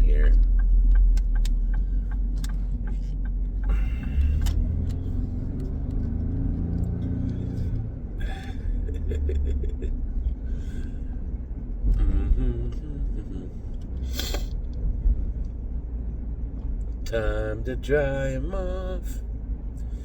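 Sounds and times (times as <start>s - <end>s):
engine and road rumble: 0.0s - 20.0s.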